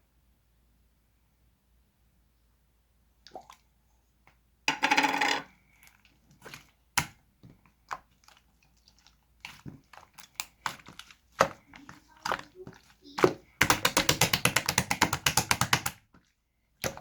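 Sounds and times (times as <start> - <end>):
slime clicking and popping: 12.2 - 16.0.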